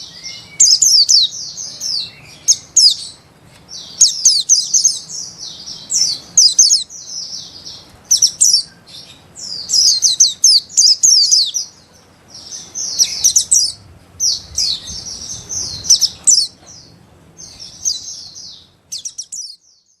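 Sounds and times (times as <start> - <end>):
bird twittering: 0.0 - 20.0.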